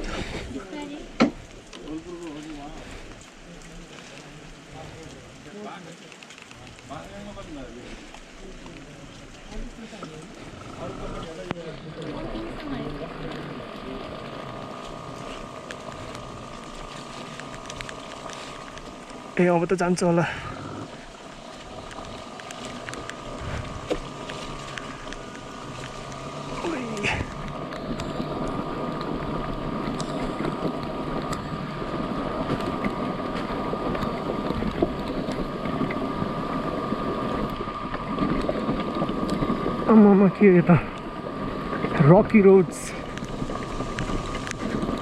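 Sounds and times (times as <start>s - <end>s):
tyres on rough road: 0.0s - 45.0s
electric motorcycle motor whine: 10.8s - 45.0s
wind noise: 14.6s - 45.0s.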